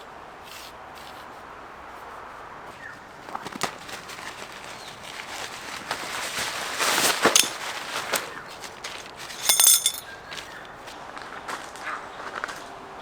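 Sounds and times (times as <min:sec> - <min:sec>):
tarp rustling: 0:03.7 - 0:09.6
short rapid rattle: 0:09.4 - 0:10.0.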